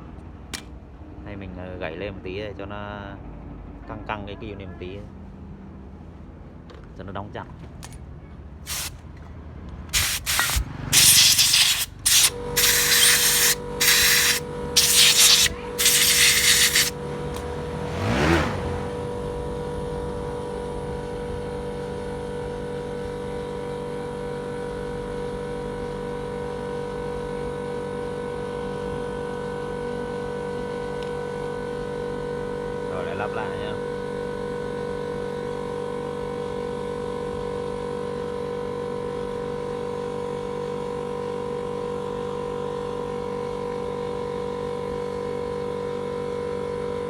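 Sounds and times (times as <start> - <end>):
spray hissing bursts: 8.7 - 8.9, 10.0 - 17.0.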